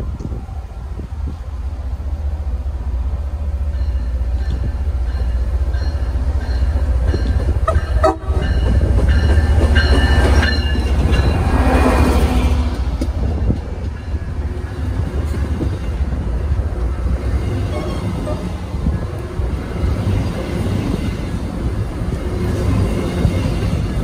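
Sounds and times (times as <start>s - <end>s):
train rumble passing: 0.0s - 24.0s
locomotive horn blasts: 7.7s - 8.5s.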